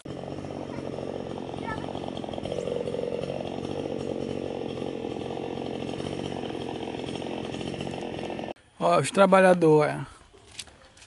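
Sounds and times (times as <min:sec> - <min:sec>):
chainsaw running: 0:00.0 - 0:08.6.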